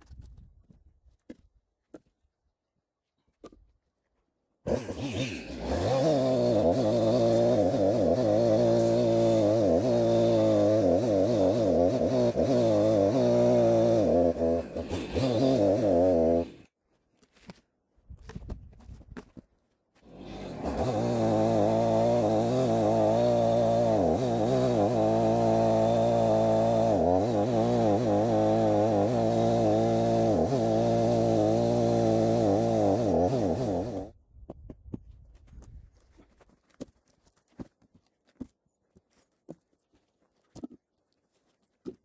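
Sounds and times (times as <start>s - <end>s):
chainsaw cutting log: 4.6s - 16.8s, 20.0s - 34.2s.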